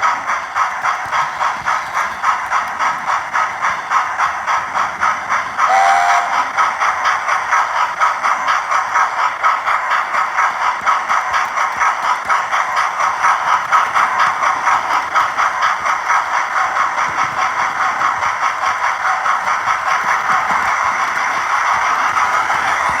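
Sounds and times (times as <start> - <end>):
model train running on track: 0.0 - 23.0.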